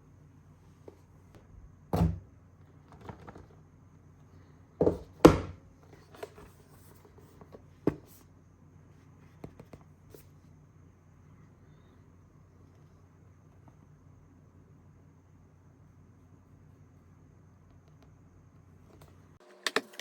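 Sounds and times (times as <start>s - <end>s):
computer parts knocking and clicking: 19.6s - 20.0s.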